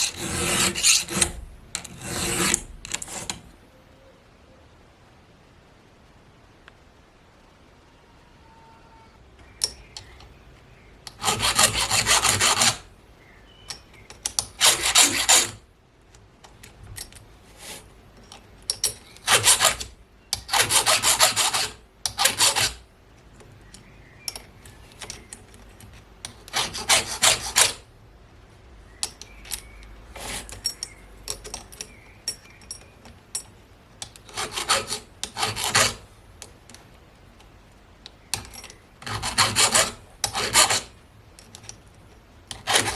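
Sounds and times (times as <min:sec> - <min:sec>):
hand file rasping on chain: 0:00.0 - 0:03.4, 0:11.1 - 0:12.8, 0:14.6 - 0:15.6, 0:19.2 - 0:22.8, 0:26.5 - 0:27.8, 0:34.3 - 0:36.0, 0:39.0 - 0:40.9, 0:42.5 - 0:42.9
small clicks and handling noise: 0:16.0 - 0:20.5, 0:23.1 - 0:26.6, 0:28.9 - 0:34.4, 0:36.4 - 0:38.9, 0:41.3 - 0:42.7.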